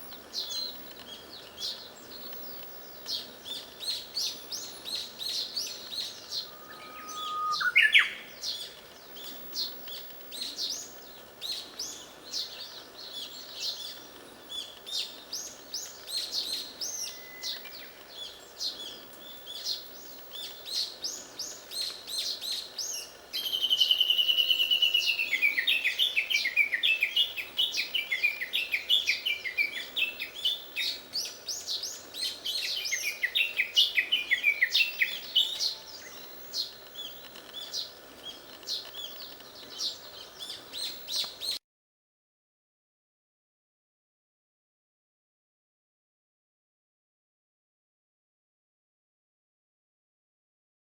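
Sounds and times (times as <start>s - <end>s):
warbler singing: 0.0s - 41.6s
high twittering chirps: 6.2s - 8.3s.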